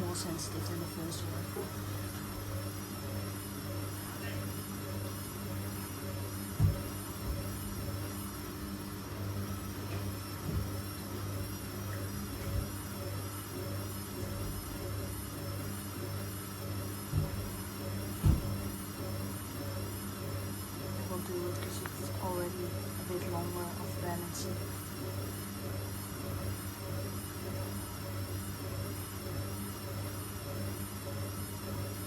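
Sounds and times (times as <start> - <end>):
washing machine motor hum: 0.0 - 32.0
dull thuds: 6.6 - 7.5, 18.2 - 18.7.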